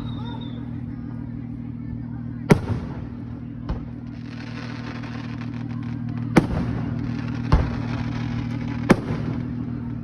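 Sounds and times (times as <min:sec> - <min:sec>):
fireworks crackling: 0:00.0 - 0:10.0
steady low hum: 0:00.0 - 0:10.0
fireworks bangs: 0:02.5 - 0:10.0.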